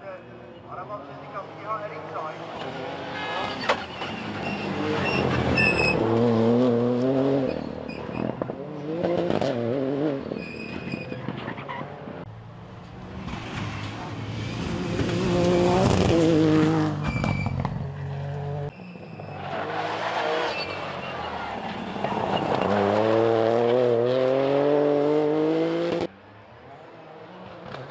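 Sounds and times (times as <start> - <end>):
rally car engine revving: 1.0 - 12.2, 13.0 - 26.1
tyre squeal: 3.2 - 6.1, 7.4 - 8.4, 10.3 - 11.9, 17.0 - 22.8.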